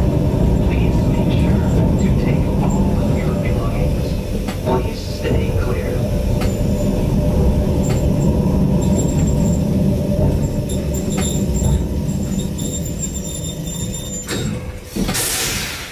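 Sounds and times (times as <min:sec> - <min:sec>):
train running gear rumble: 0:00.0 - 0:15.9
wheel clicks over rail joints: 0:07.7 - 0:15.2.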